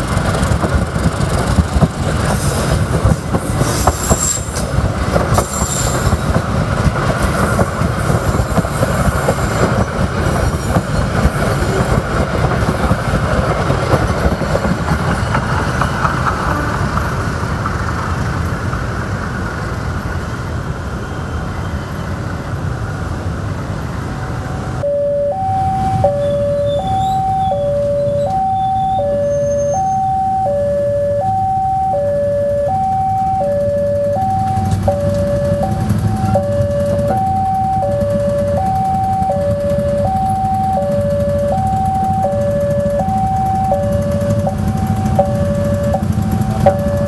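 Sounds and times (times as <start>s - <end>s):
passenger train rumbling past: 0.0s - 47.0s
two-tone crossing alarm: 24.8s - 47.0s.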